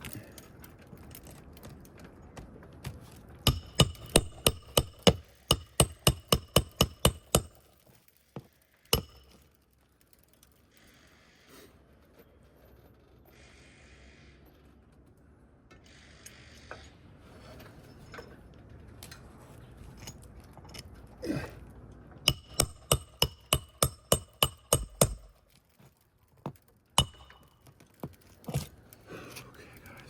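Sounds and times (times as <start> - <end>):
hammer striking nail: 3.5 - 7.6, 9.0 - 9.4, 22.3 - 25.4, 27.0 - 27.6
shingle rustling and scraping: 22.0 - 30.0.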